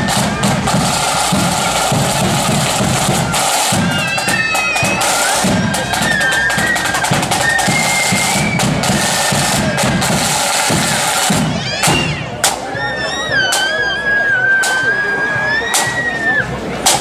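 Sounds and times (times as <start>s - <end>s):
bass drum beating: 0.0s - 12.6s
snare drums rattling: 0.0s - 12.7s, 16.8s - 17.0s.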